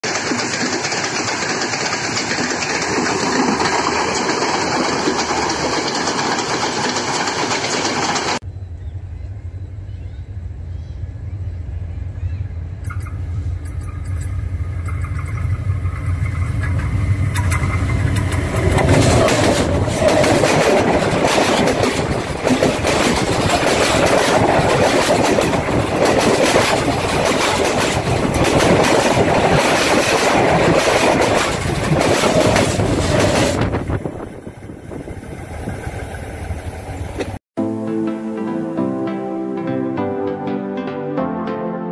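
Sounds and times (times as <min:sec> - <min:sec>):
steel wheels clacking over rails: 0:00.0 - 0:08.4, 0:12.9 - 0:37.4
low train engine rumble: 0:00.0 - 0:37.4.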